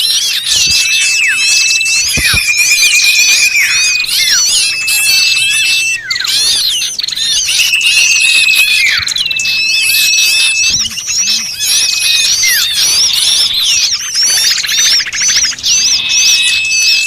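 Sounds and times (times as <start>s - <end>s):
bird whistles: 0.0s - 17.0s
buzzy bird trill: 0.0s - 17.0s
small birds chirping: 0.0s - 17.0s.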